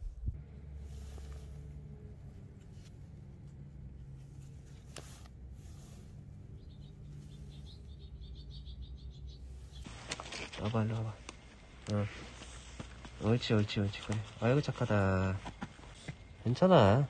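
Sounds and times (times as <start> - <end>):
low steady hum: 0.0 - 17.0
faint bird chirping: 5.4 - 9.9.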